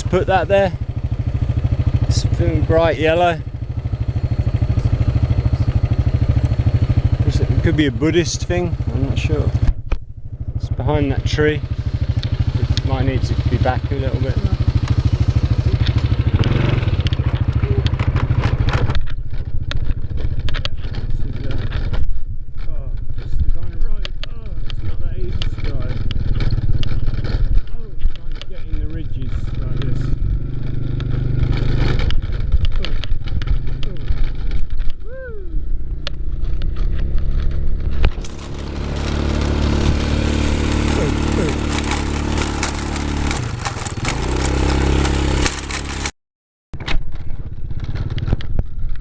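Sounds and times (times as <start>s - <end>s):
motorcycle engine running: 0.0s - 46.1s, 46.8s - 49.0s
clicks and rattles: 14.7s - 35.1s, 36.0s - 46.1s, 46.8s - 49.0s.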